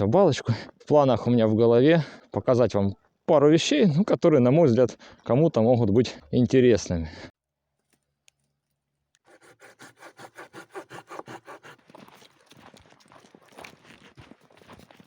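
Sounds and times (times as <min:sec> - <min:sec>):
footsteps crunching through snow: 0:11.5 - 0:15.0.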